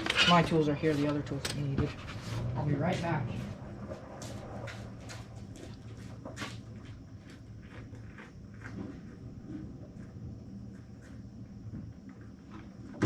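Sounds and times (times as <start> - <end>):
steady low hum: 0.0 - 13.0
footsteps on hard surface: 1.8 - 7.8.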